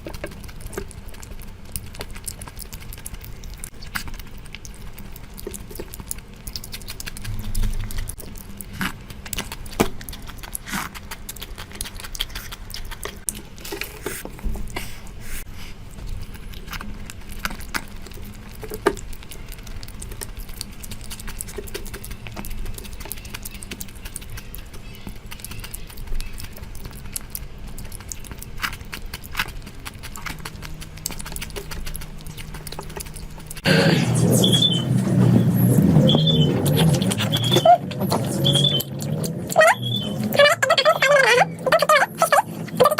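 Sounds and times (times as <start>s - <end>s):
wet chewing and smacking: 0.0s - 42.9s.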